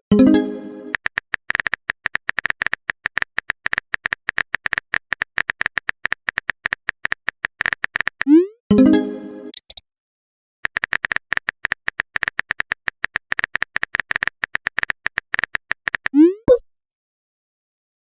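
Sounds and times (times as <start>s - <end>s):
clicky typing beeps: 0.9s - 8.4s.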